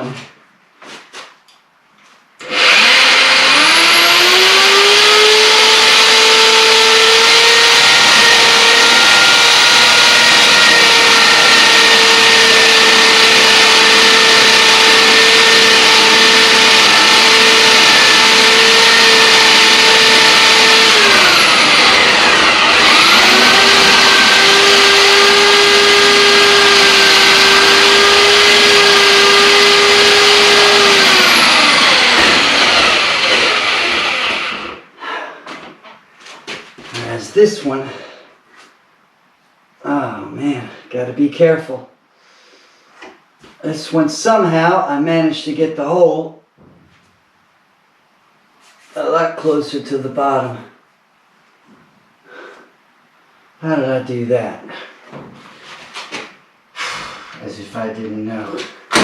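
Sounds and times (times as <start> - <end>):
electric drill boring into wood: 2.4 - 34.9.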